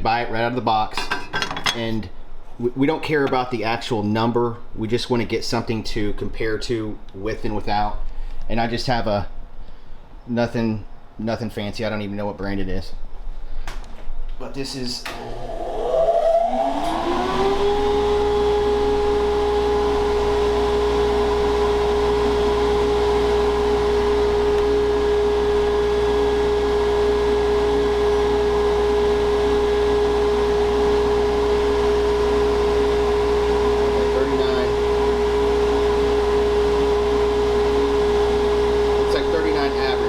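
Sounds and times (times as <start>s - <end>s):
dust collector motor whine: 15.0s - 40.0s.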